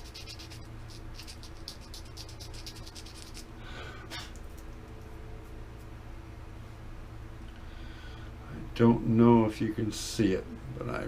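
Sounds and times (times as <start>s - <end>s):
sandpaper scratching: 0.0s - 3.4s
steady low hum: 0.0s - 11.0s.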